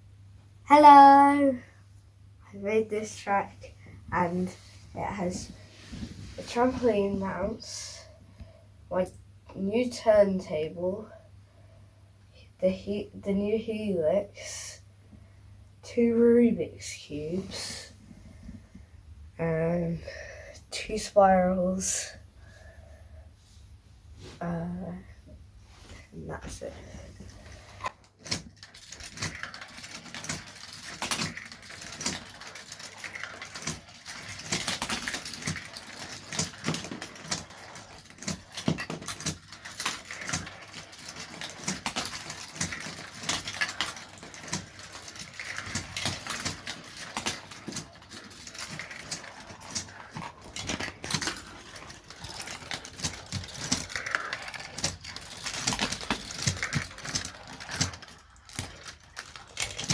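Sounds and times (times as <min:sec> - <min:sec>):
marbles clattering through plastic run: 0:27.4 - 0:59.9.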